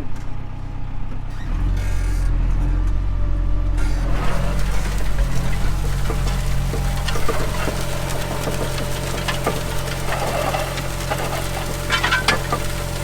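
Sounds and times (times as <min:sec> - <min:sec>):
tractor engine running under load: 0:02.4 - 0:13.0
clicks and knocks: 0:04.8 - 0:13.0.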